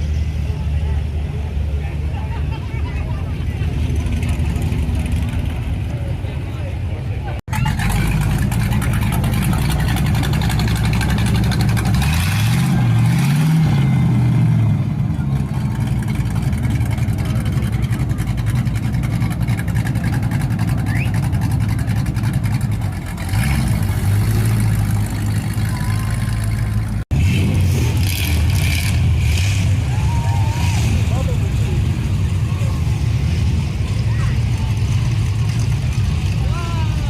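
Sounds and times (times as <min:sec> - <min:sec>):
cars cruising by: 0:00.0 - 0:37.0
car engine revving: 0:07.5 - 0:30.0.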